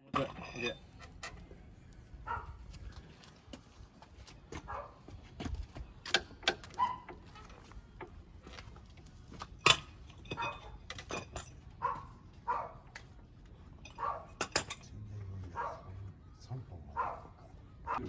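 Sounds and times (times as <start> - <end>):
dog barking: 2.3 - 2.6, 4.6 - 5.0, 6.7 - 7.1, 10.4 - 10.7, 11.8 - 12.8, 14.0 - 14.4, 15.5 - 16.0, 16.9 - 18.0
metallic clinks and taps: 13.8 - 14.9.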